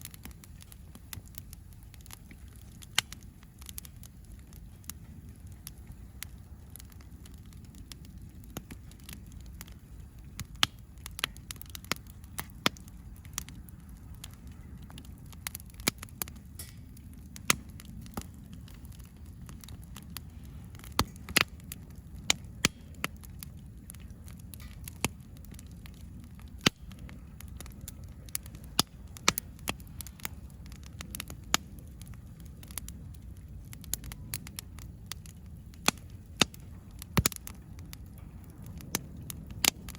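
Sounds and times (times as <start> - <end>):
campfire crackling: 0.0 - 39.9
sharp pops of fire: 0.0 - 39.9.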